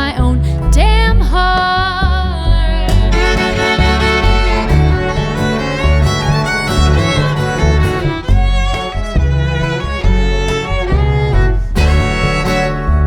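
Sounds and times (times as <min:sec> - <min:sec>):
acoustic guitar: 0:00.0 - 0:13.0
pulsing bass line: 0:00.7 - 0:13.0
cello: 0:02.8 - 0:13.0
fiddle melody: 0:03.0 - 0:13.0.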